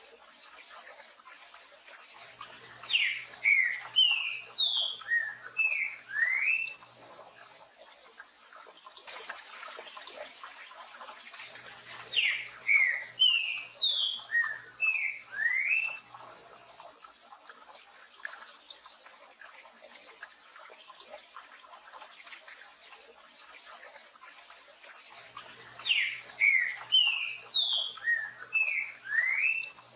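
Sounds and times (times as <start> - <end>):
bird singing slurred whistles: 2.9 - 6.8, 12.2 - 16.0, 25.8 - 29.8.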